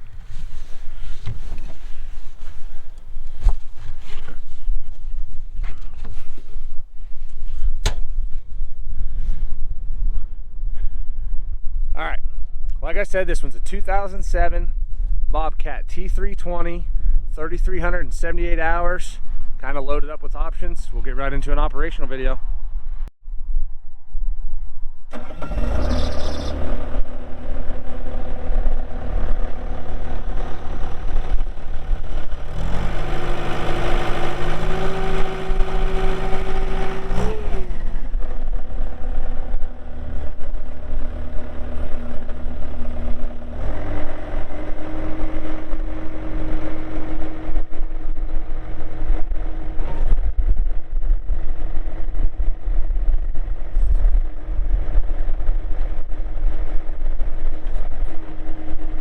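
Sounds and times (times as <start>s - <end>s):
diesel engine revving and idling: 0.0s - 6.8s, 25.1s - 59.0s.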